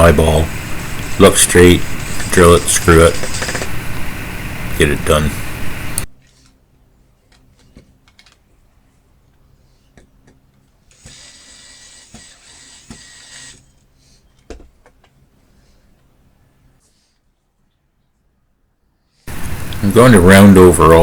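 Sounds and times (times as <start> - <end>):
drill driving screw into wood: 3.1 - 3.8, 10.9 - 13.7.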